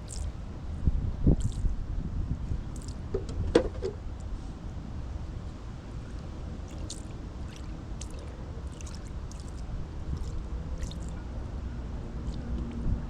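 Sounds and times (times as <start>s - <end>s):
water splashing on concrete: 0.0s - 0.3s, 1.4s - 1.7s, 2.8s - 3.0s, 6.7s - 11.2s
steady low rumble: 0.0s - 13.0s.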